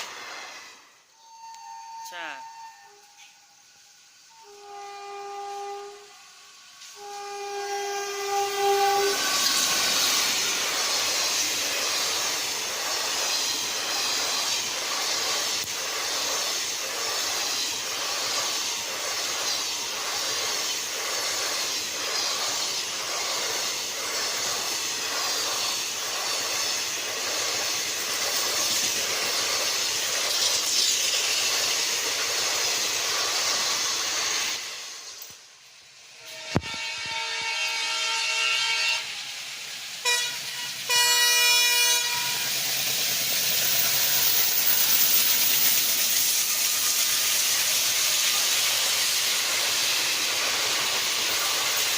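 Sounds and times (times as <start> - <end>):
train passing at speed: 0.0 - 51.9
train horn: 4.3 - 10.0, 36.2 - 39.2, 40.0 - 42.6.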